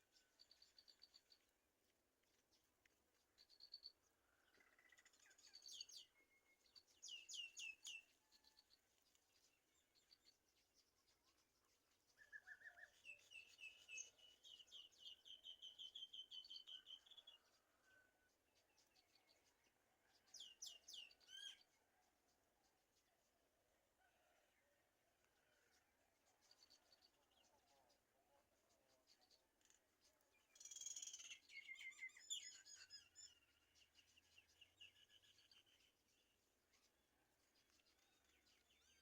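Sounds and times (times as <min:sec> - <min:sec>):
faint bird chirps: 0:02.5 - 0:21.7, 0:25.5 - 0:39.0.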